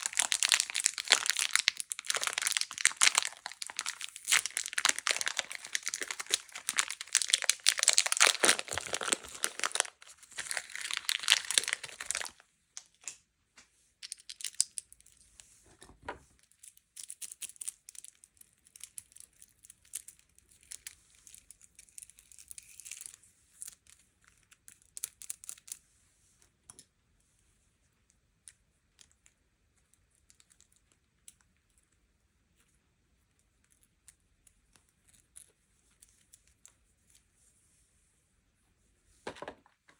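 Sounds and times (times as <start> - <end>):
wrapper tearing and crumpling: 0.0 - 12.4.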